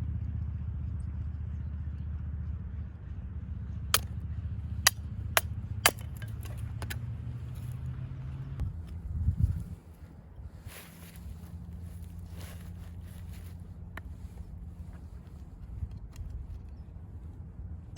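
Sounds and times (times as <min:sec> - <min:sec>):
sharp clicks and knocks: 0:04.9 - 0:07.0.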